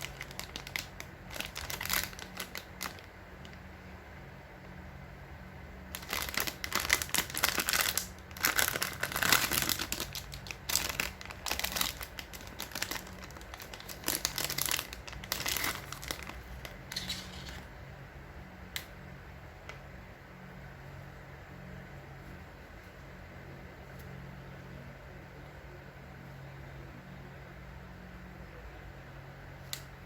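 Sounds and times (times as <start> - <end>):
plastic wrapper crinkling and tearing: 0.0 - 3.6, 5.9 - 17.7.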